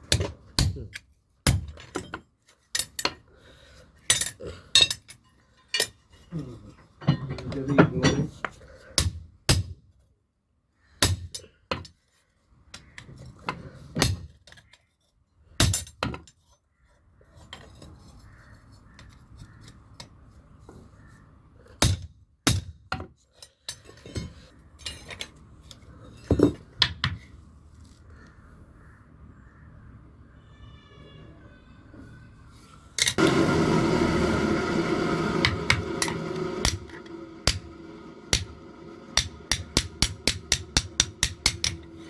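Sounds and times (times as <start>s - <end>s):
metal tools clinking and knocking: 4.1s - 8.5s, 23.4s - 26.8s.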